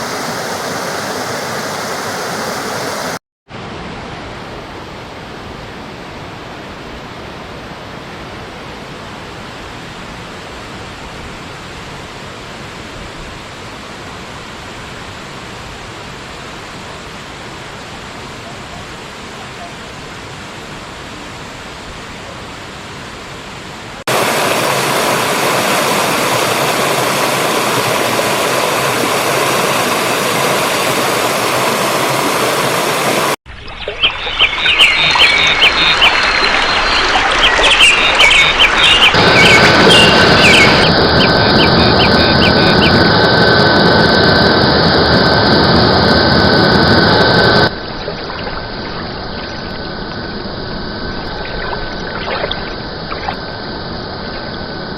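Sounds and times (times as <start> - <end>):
rushing water: 0.0 - 54.9
birds chirping: 25.7 - 43.4, 51.0 - 53.4.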